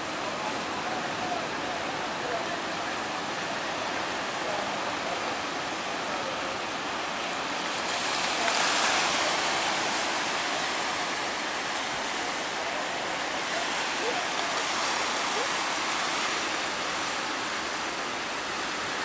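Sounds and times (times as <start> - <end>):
ocean waves rushing: 0.0 - 19.0
wave breaking: 7.4 - 17.2.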